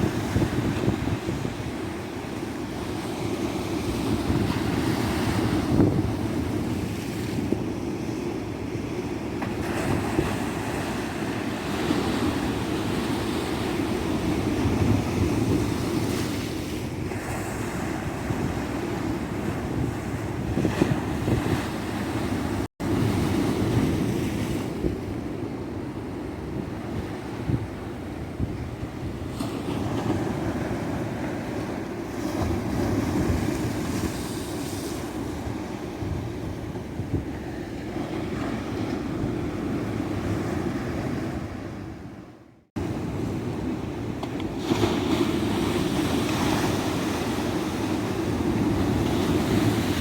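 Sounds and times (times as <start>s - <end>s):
wind rumbling on microphone: 0.0s - 3.1s, 3.7s - 7.8s, 9.6s - 31.4s, 32.1s - 42.2s.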